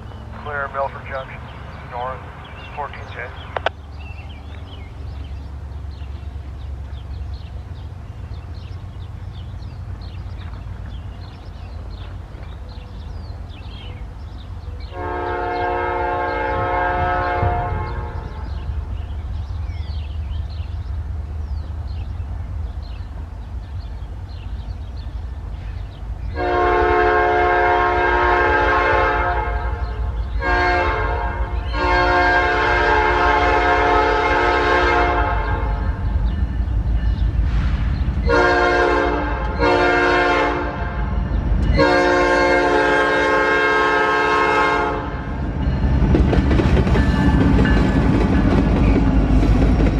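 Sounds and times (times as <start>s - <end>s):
diesel engine rumble: 0.0s - 28.6s
locomotive air horn blasts: 14.9s - 18.6s, 26.3s - 35.9s, 38.3s - 45.3s.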